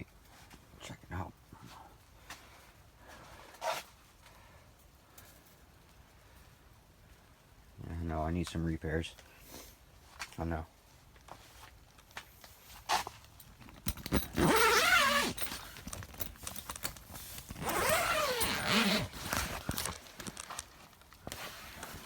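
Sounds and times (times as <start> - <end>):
small clicks and rustles: 1.5 - 7.4, 8.5 - 22.0
zipper pulled: 13.9 - 22.0.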